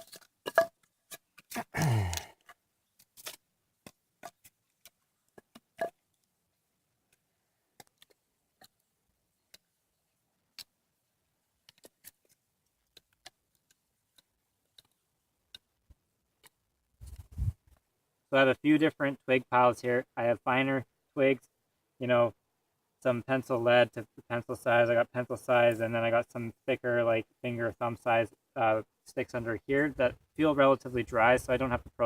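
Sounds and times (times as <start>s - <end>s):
twigs snapping: 3.0s - 5.6s.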